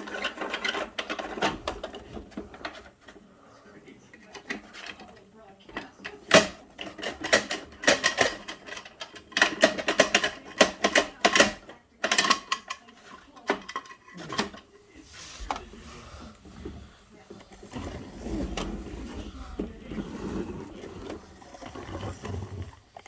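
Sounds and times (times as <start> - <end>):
toy trucks clicking and clattering: 0.0 - 3.2, 4.1 - 14.7.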